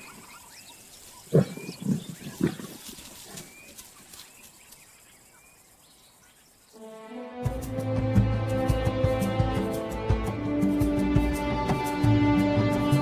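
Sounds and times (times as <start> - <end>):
lions growling: 1.3 - 3.5.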